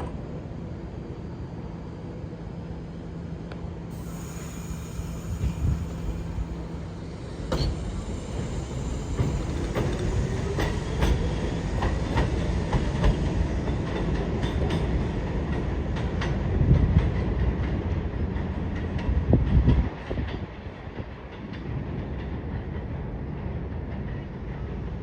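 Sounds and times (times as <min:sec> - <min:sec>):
subway train wheels clattering: 0:00.0 - 0:25.0
motor whine: 0:03.9 - 0:10.7.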